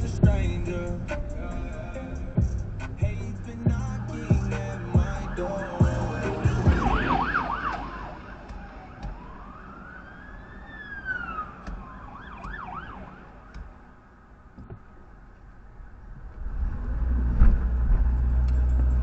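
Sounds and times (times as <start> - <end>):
music with a beat: 0.0 - 9.4
police siren warbling and wailing: 3.8 - 13.5.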